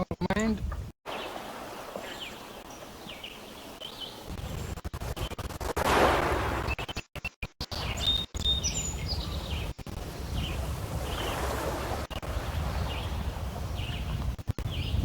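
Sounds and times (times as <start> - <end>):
birds chirping: 0.0 - 5.6, 6.3 - 7.0, 7.6 - 15.0
lake waves lapping against stones: 1.1 - 4.7, 5.6 - 6.8, 8.9 - 14.4.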